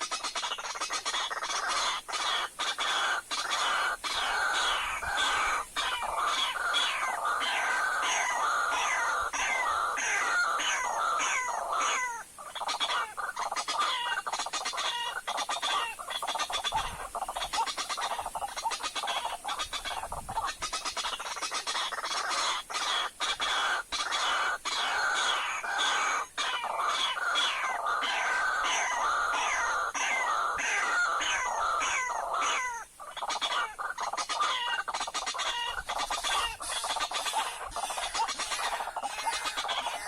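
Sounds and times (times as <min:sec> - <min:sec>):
waterhens calling harshly: 0:00.0 - 0:40.0.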